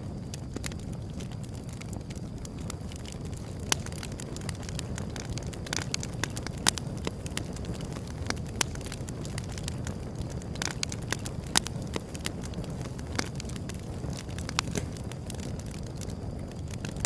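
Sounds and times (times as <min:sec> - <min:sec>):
fire crackles and pops: 0:00.0 - 0:17.0
fire low rush: 0:09.1 - 0:17.0.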